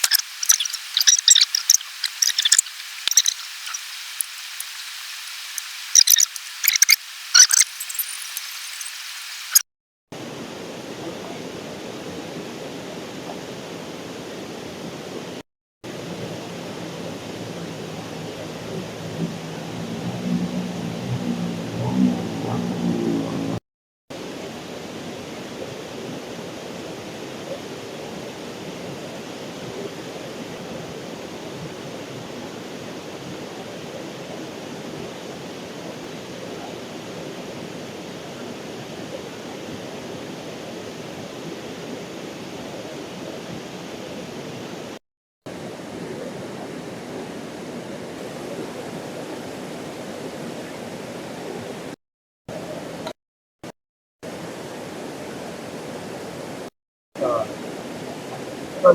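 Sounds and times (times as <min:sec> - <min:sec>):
waterfall rushing: 0:00.0 - 0:09.6, 0:10.2 - 0:23.6.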